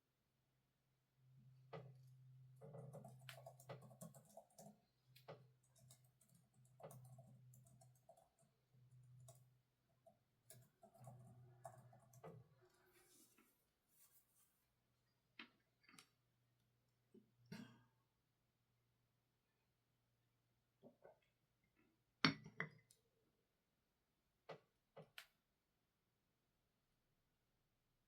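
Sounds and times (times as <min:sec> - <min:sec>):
clicks and taps at a desk: 0:01.7 - 0:08.4, 0:22.3 - 0:22.9.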